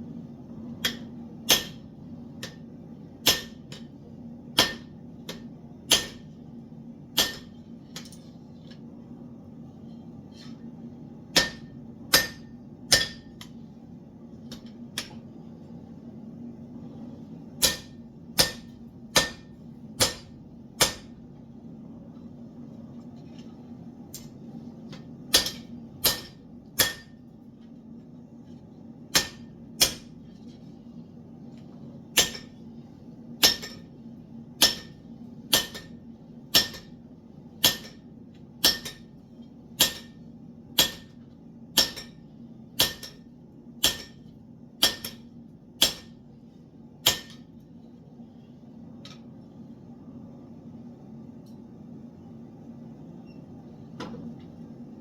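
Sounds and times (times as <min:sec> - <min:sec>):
steady low hum: 0:00.0 - 0:55.0
hammer striking steel on anvil: 0:00.8 - 0:04.0, 0:04.6 - 0:06.4, 0:07.1 - 0:08.1, 0:11.3 - 0:13.6, 0:17.6 - 0:21.2, 0:25.3 - 0:27.3, 0:29.1 - 0:30.2, 0:32.2 - 0:32.6, 0:33.4 - 0:33.9, 0:34.6 - 0:37.0, 0:37.6 - 0:39.2, 0:39.8 - 0:40.2, 0:40.8 - 0:42.2, 0:42.8 - 0:46.2, 0:47.0 - 0:47.5.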